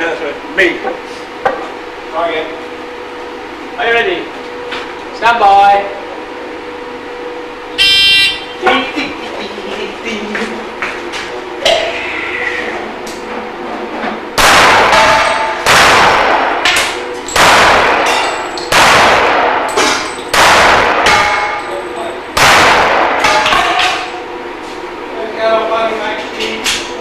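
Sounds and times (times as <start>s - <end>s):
pistol shots: 14.4s - 21.6s, 22.4s - 23.6s
bullets clanging on steel targets: 16.7s - 18.8s, 19.6s - 22.2s.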